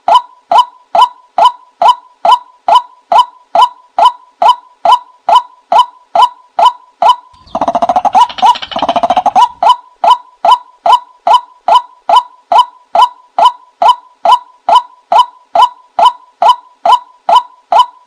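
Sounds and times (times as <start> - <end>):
bird calling sharp notes: 7.3 - 10.2
harsh fast-pulsing rattle: 7.4 - 9.6.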